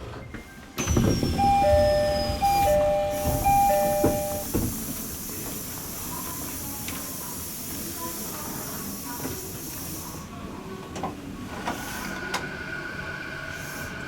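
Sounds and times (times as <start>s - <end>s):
two-note electronic door chime: 0.8s - 4.5s
train hiss and rumble: 2.4s - 14.0s.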